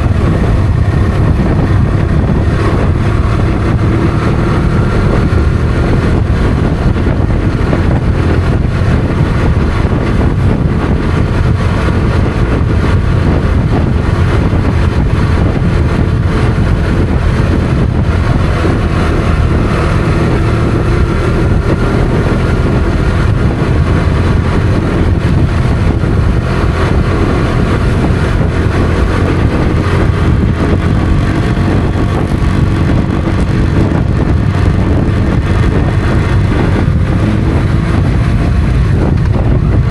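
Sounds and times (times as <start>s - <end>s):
constant rushing noise: 0.0s - 39.9s
motorcycle engine running: 0.0s - 39.9s.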